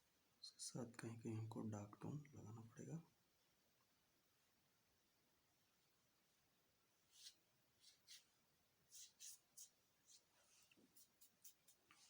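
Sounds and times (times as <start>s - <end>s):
brush strokes on paper: 7.0s - 12.0s.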